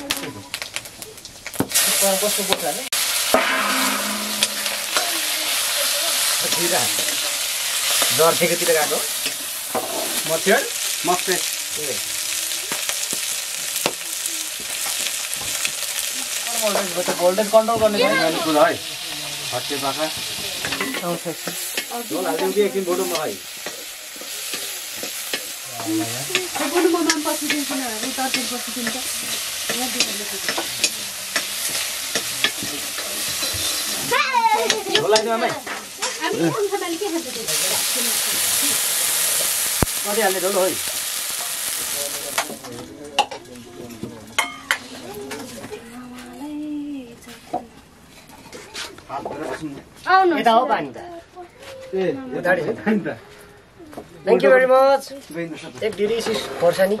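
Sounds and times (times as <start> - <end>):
chicken sizzling in hot oil: 0.4 - 42.8
metal ladle scraping a wok: 3.0 - 8.1.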